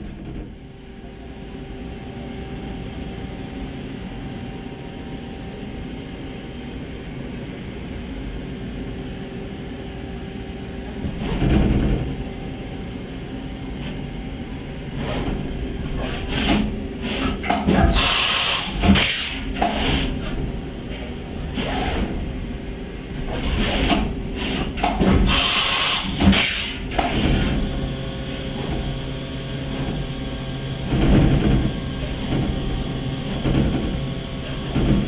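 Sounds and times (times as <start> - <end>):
machine mechanical hum with whine: 0.0 - 35.0
rush of machine noise: 15.0 - 22.4, 23.2 - 35.0.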